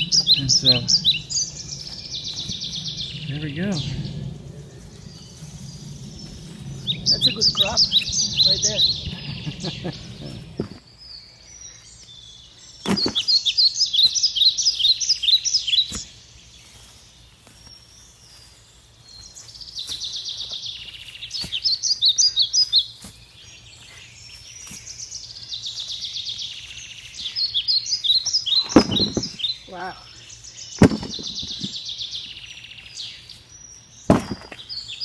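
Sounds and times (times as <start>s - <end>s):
songbird singing: 0.0s - 35.0s
dull thumps: 9.9s - 10.8s, 12.8s - 13.3s, 28.6s - 29.4s, 30.8s - 31.8s, 34.1s - 34.6s.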